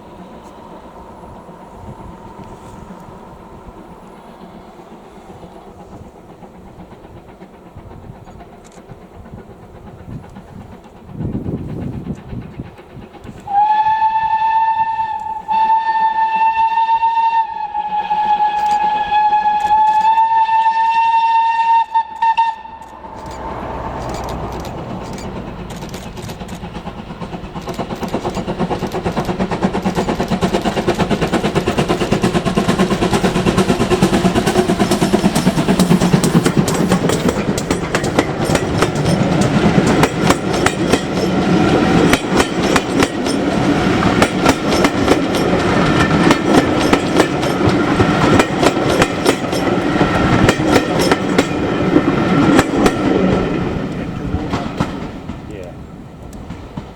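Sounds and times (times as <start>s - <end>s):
train running with wheel clicks: 0.0s - 56.9s
steam locomotive whistle: 13.4s - 25.3s.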